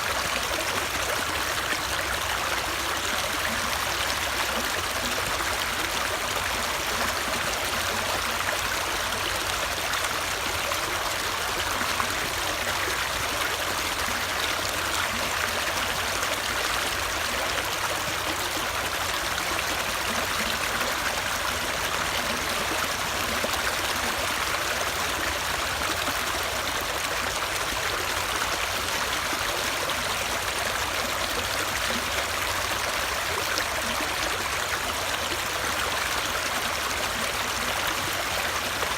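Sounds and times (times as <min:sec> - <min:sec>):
running water flowing: 0:00.0 - 0:38.9.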